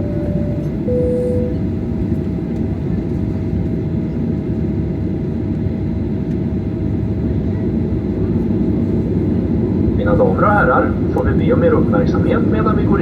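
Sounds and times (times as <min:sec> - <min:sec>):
two-tone cabin chime: 0:00.0 - 0:01.7
aircraft cabin rumble: 0:00.0 - 0:03.8.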